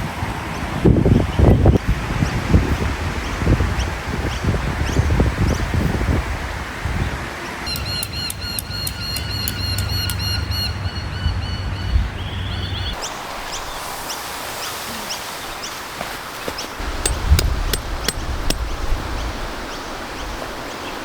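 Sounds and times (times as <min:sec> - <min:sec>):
wind on microphone: 0:00.0 - 0:07.7
birds calling: 0:07.4 - 0:21.0.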